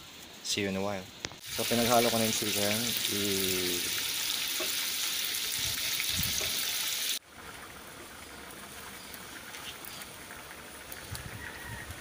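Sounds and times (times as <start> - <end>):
meat sizzling in a wok: 1.4 - 7.2
sauce bubbling in a wok: 1.4 - 12.0.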